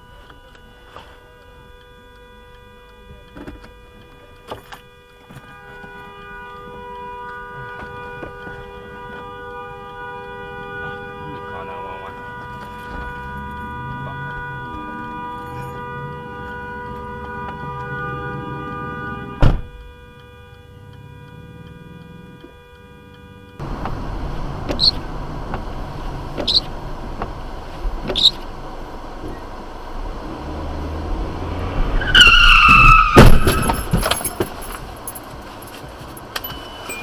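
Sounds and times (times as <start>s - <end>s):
car road noise: 0.0s - 37.0s
tyres squealing in a skid: 23.6s - 25.1s, 26.2s - 26.8s, 28.0s - 28.5s, 29.3s - 37.0s
car crash impacts: 31.2s - 36.7s.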